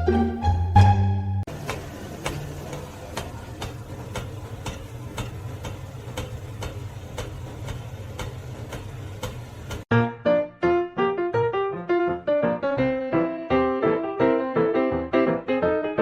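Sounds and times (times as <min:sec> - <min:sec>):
regular ticking: 0:01.5 - 0:09.9.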